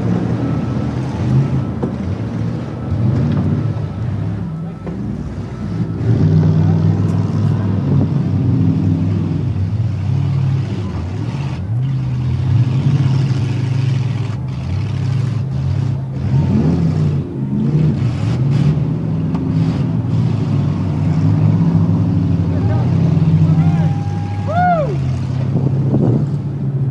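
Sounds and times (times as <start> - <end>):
car engines revving: 0.0 - 26.9.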